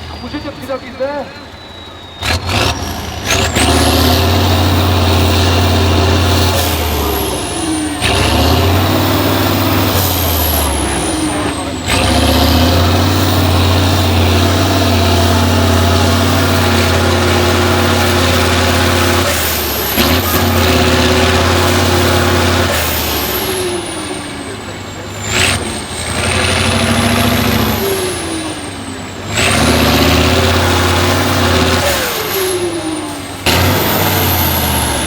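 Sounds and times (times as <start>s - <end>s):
high whistle: 0.0s - 8.0s
diesel truck engine under load: 0.0s - 35.0s.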